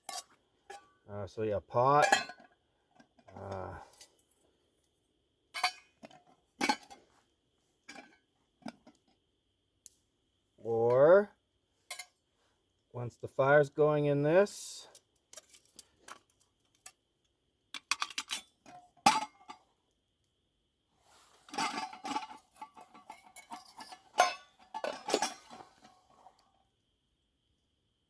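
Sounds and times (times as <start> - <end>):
metal cookware clinking: 1.9 - 2.5, 5.6 - 7.0, 21.5 - 26.0.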